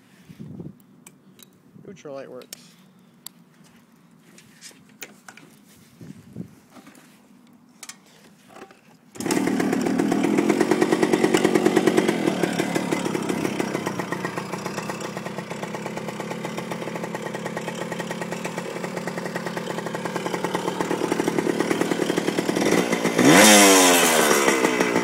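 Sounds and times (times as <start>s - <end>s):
two-stroke engine starting and idling: 8.5s - 25.0s.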